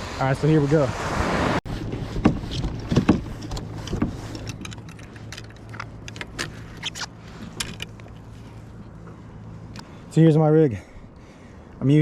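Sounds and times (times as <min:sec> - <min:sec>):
metal parts clicking and clinking: 0:04.3 - 0:08.2.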